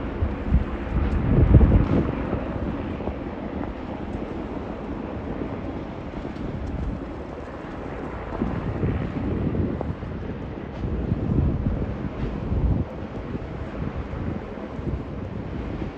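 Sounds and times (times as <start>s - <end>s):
steady low rumble: 0.0s - 15.9s
wind buffeting microphone: 0.0s - 15.9s.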